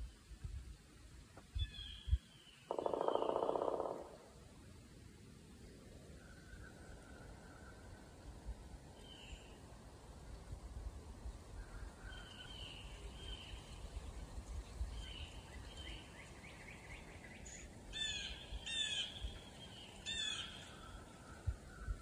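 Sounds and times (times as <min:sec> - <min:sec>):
wild birds calling: 0:02.7 - 0:04.2.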